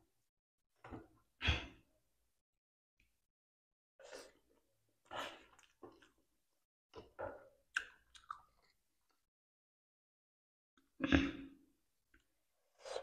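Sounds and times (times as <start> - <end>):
person chewing noodles: 7.7 - 9.3.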